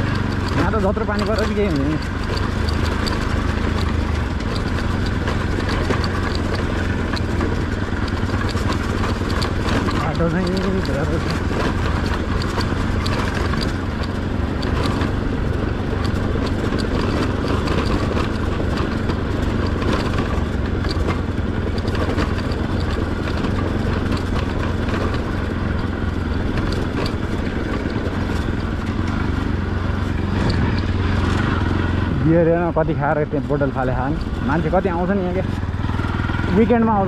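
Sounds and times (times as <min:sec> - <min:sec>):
clicks and rattles: 0:00.0 - 0:37.0
motorcycle engine running: 0:00.0 - 0:37.0.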